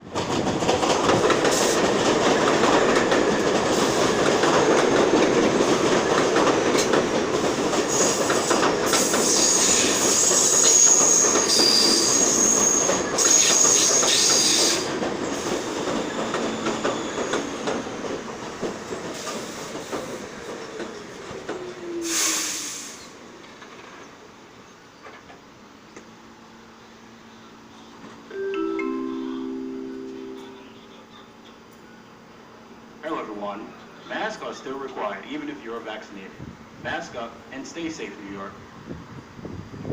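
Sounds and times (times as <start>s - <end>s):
falling whine of slowing train: 0.0s - 39.9s
subway train wheel noise: 0.0s - 39.9s
high-pitched wheel squeal: 9.3s - 14.8s
air hiss: 22.0s - 23.1s.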